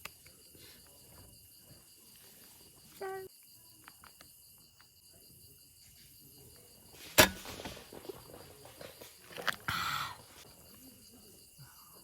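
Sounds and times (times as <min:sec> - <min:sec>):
insect chirring: 0:00.0 - 0:07.3.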